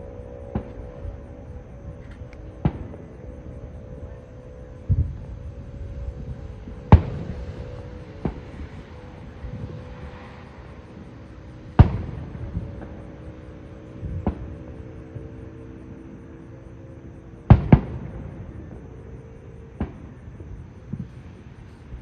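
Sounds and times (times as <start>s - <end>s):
rolling echo: 0.0s - 16.4s, 17.4s - 22.0s
fireworks booming: 2.6s - 3.2s, 4.8s - 5.5s, 6.1s - 10.2s, 10.9s - 14.9s, 17.5s - 18.9s, 19.7s - 22.0s.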